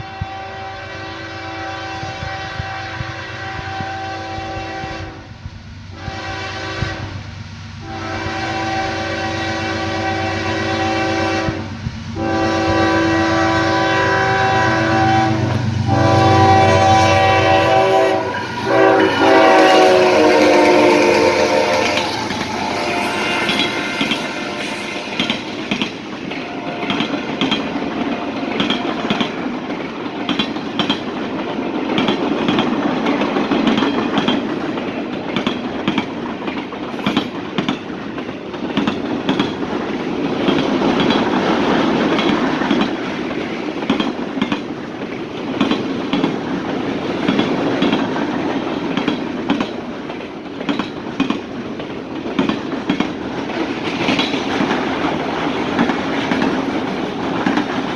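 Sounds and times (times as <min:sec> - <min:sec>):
freight train rumbling: 0:00.0 - 0:57.9
wheels clicking over rail joints: 0:25.1 - 0:57.9.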